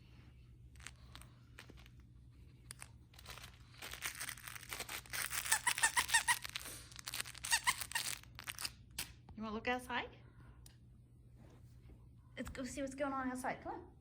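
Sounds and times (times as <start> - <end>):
squeaky toy squeaking: 5.0 - 8.7.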